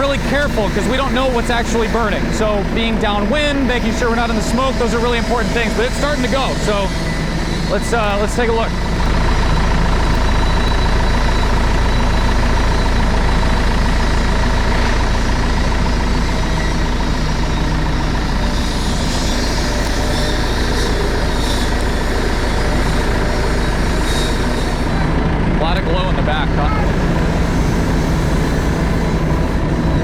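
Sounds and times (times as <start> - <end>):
fire engine diesel idling: 0.0 - 30.0.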